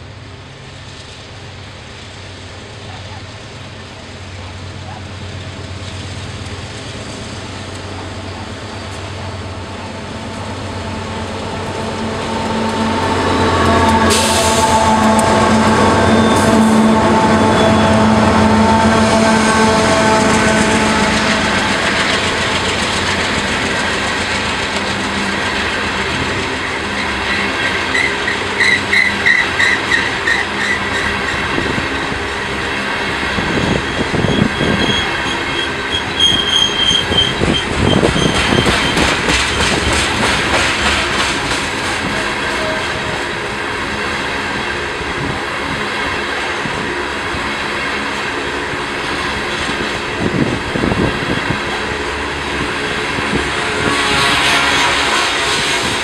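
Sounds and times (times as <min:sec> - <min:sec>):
freight train rumbling past: 0:00.0 - 0:56.0
wheel squeals: 0:26.9 - 0:32.1, 0:33.5 - 0:40.2.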